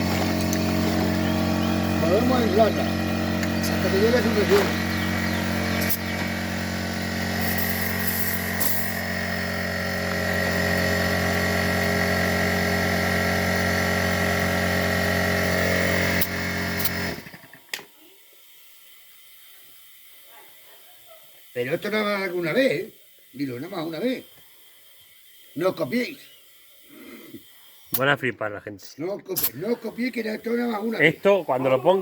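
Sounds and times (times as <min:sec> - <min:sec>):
air compressor motor whining: 0:00.0 - 0:17.7, 0:29.3 - 0:32.0.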